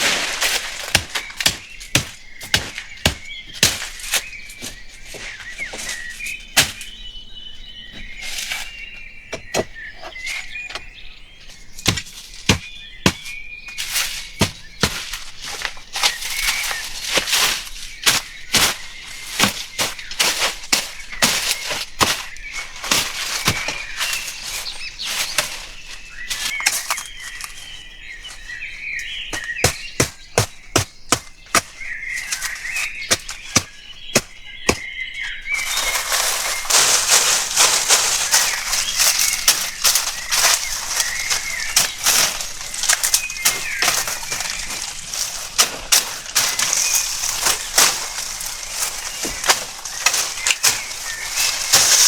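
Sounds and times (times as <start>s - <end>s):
birds chirping and whistling: 0.0s - 52.0s
sharp irregular knocks: 0.1s - 4.0s.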